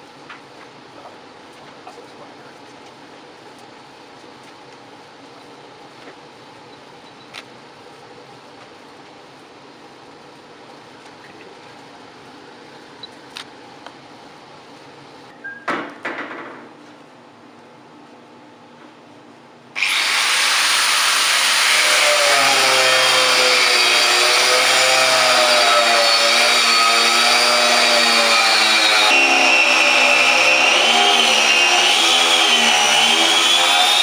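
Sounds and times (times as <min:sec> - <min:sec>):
power grinder whining: 0:19.8 - 0:34.0.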